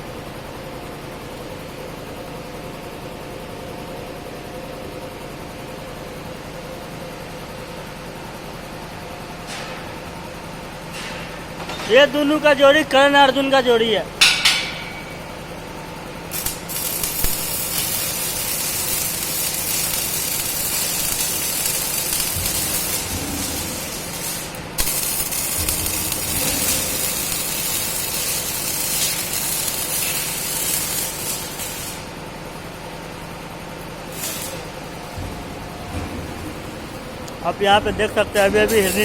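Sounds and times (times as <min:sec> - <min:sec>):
welding arc sizzling hiss: 0:11.9 - 0:39.0.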